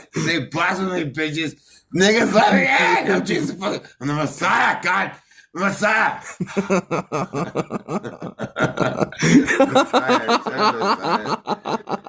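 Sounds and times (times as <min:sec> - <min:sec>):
man vocalising: 0:00.0 - 0:00.6, 0:02.0 - 0:04.2.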